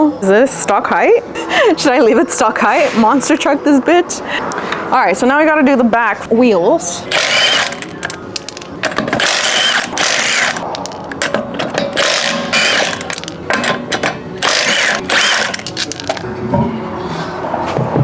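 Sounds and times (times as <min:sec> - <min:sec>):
wrench ratcheting on lug nuts: 0:07.1 - 0:16.2.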